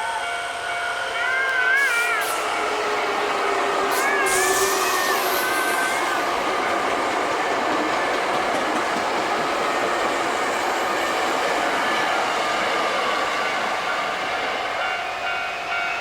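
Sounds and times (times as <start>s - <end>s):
level crossing warning bell: 0.0s - 5.8s, 12.0s - 16.0s
electric train passing: 0.0s - 16.0s.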